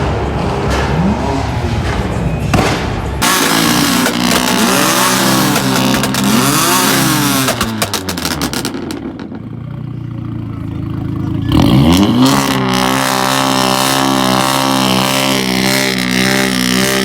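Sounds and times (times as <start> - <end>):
car exhaust revving: 0.0 - 9.4, 11.0 - 17.0
exhaust pops: 0.3 - 9.4.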